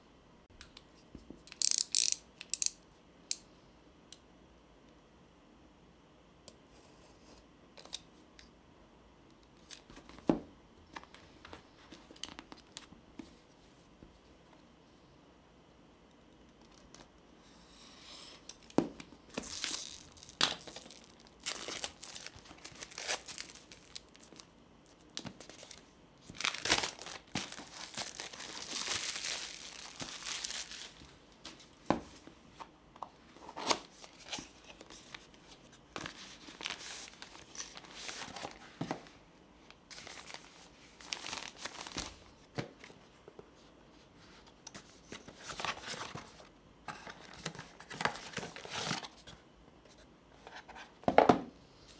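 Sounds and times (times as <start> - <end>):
packaging rustling: 19.3 - 31.6, 35.9 - 39.0, 39.9 - 42.2
plastic and paper crinkling: 19.3 - 31.7, 33.4 - 39.1, 39.9 - 43.0.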